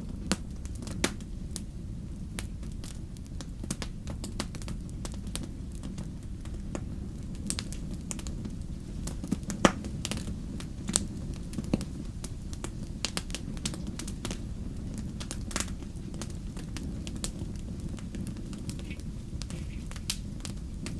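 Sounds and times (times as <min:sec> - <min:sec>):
fire crackling and popping: 0:00.0 - 0:20.9
low rumble of flames: 0:00.0 - 0:20.9.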